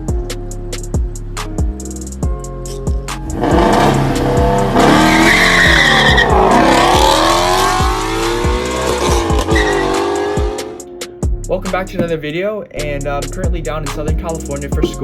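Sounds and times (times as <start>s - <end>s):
drum-beat music track: 0.0s - 15.0s
car engine revving hard: 3.2s - 10.8s.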